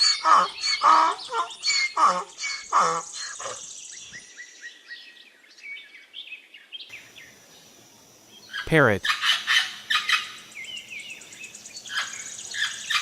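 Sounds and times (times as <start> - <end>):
donkey braying: 0.0 - 3.1
faint birds chirping: 0.0 - 13.0.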